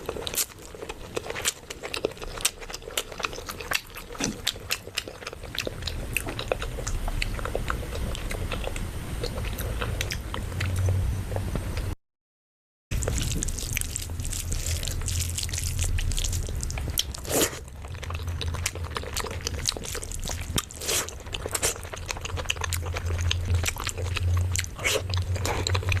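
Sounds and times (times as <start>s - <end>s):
person chewing and crunching: 0.0s - 11.4s, 12.9s - 26.0s.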